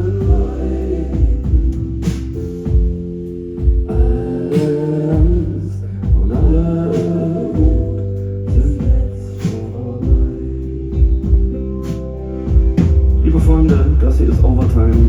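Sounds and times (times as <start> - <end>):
organ-like keyboard chords: 0.0 - 15.0
slow kick drum: 1.2 - 1.8, 2.7 - 4.2, 5.2 - 6.7, 8.5 - 9.1, 10.0 - 10.4, 11.0 - 11.6, 12.5 - 15.0.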